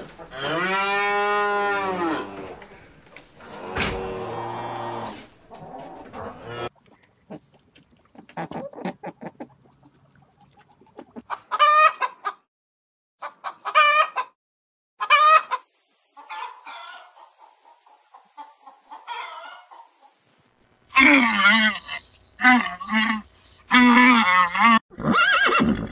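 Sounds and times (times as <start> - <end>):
chickens clucking: 5.5 - 12.5, 13.2 - 14.4, 15.0 - 20.2
loud chicken calls: 11.0 - 12.4, 13.2 - 14.4, 15.0 - 20.2.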